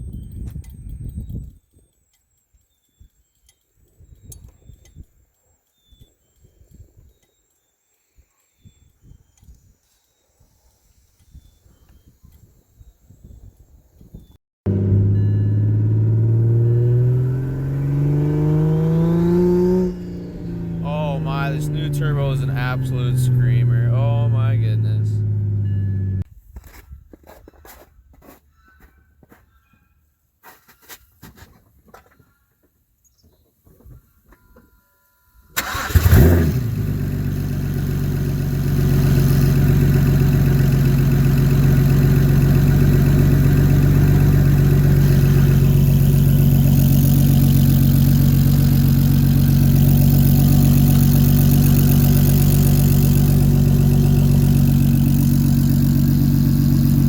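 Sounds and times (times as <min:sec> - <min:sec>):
car engine starting and idling: 0:14.7 - 0:26.2, 0:35.6 - 0:57.0.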